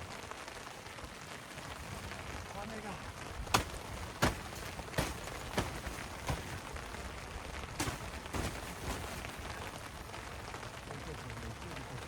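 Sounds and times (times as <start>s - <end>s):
steady rain falling: 0.0s - 12.0s
sharp taps or knocks: 3.5s - 6.7s.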